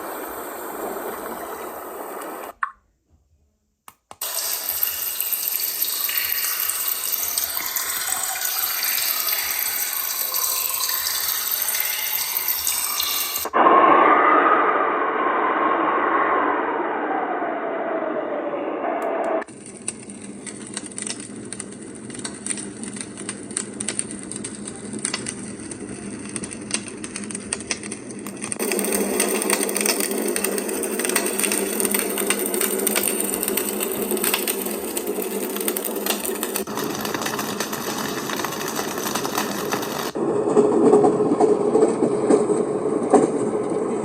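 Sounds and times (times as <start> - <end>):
full hiss: 0.0 - 2.6, 4.2 - 13.6
crackly hiss with clicks: 0.0 - 2.8, 3.9 - 13.6, 19.4 - 40.2.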